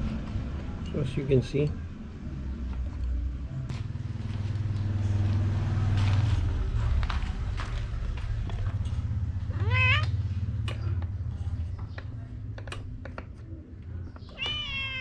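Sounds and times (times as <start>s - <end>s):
steady low rumble: 3.4s - 12.4s
cat meowing: 9.5s - 10.2s, 14.3s - 15.0s.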